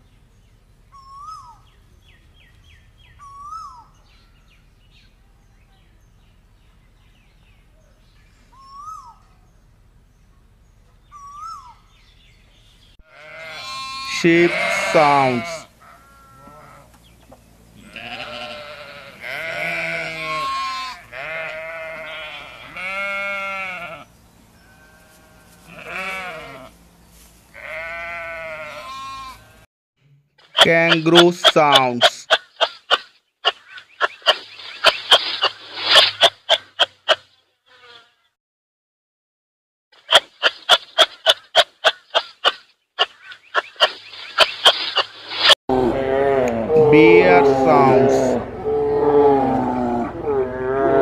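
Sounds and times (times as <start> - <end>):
sheep bleating: 13.0 - 16.9, 17.8 - 26.7, 27.5 - 29.6
kangaroo clicking calls: 30.4 - 37.3, 40.0 - 45.1.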